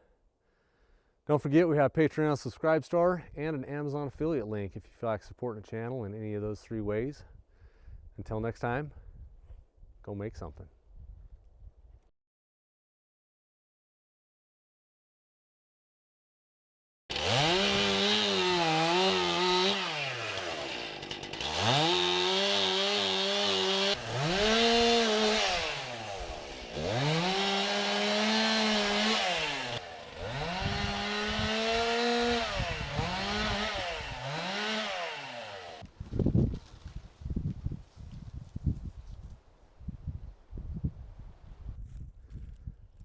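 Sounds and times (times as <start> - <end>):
chainsaw revving: 17.1 - 35.8.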